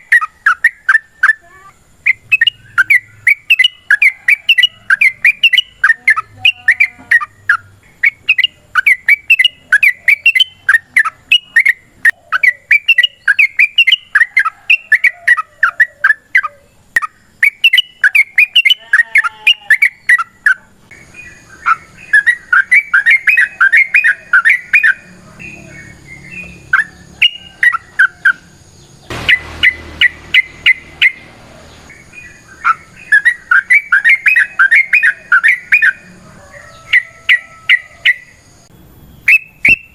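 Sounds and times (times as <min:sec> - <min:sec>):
bird singing bubbly chattering phrases: 0:00.0 - 0:28.4, 0:32.0 - 0:36.0
low background noise: 0:00.0 - 0:39.9
faint high whine: 0:20.8 - 0:36.8, 0:37.4 - 0:39.9
short burst of noise: 0:29.0 - 0:33.7.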